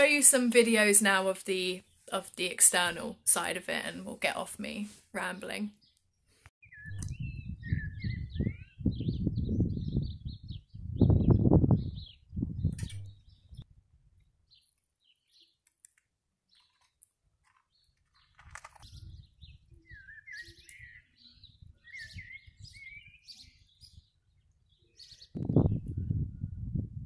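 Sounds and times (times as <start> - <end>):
small birds chirping: 3.7 - 26.0
warbling bird song: 5.8 - 13.7, 17.7 - 26.6.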